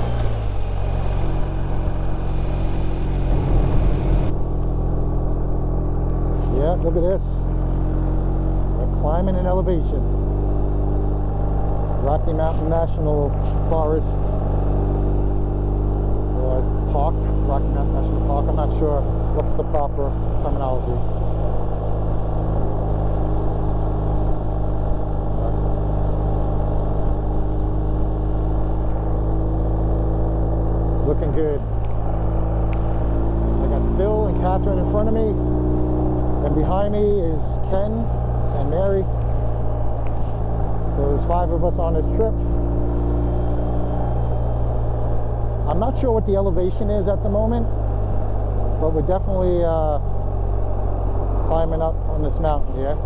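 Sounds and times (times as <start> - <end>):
wind rush: 0.0 - 4.5
motorcycle engine running: 0.0 - 53.0
road noise: 0.0 - 53.0.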